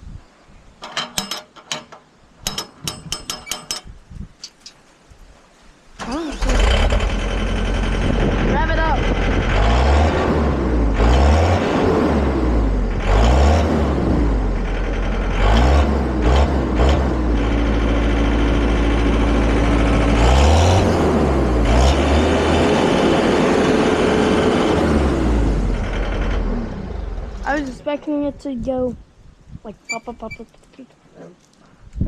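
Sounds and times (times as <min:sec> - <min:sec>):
diesel engine revving: 0:06.3 - 0:27.5.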